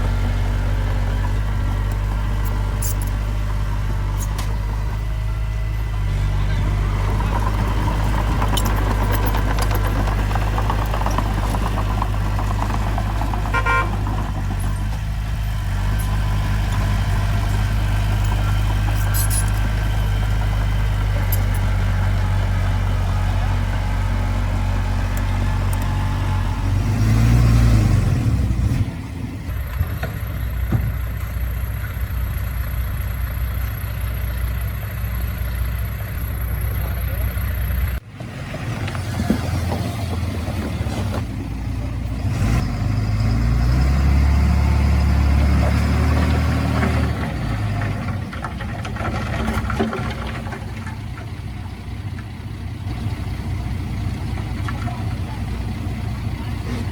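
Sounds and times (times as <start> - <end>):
diesel engine droning: 0.0 - 56.9.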